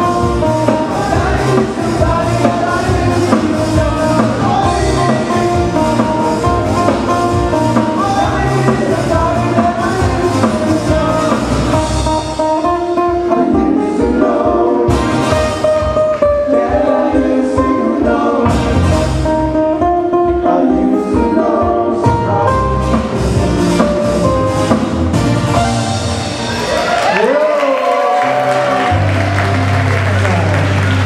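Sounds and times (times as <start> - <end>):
person singing: 0.0 - 15.3, 19.8 - 22.9
guitar: 0.0 - 31.0
live band playing: 0.0 - 31.0.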